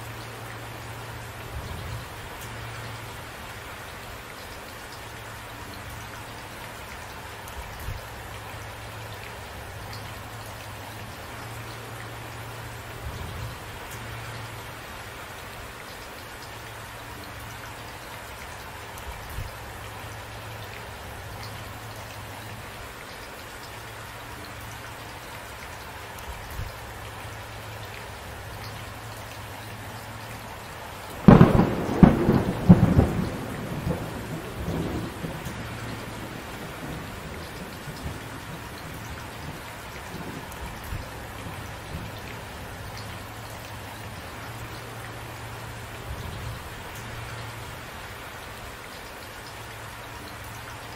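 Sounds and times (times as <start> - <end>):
steady rain falling: 0.0 - 50.9
loud close thunderclap: 31.2 - 37.1
faint low thunder rumbles: 31.2 - 42.3.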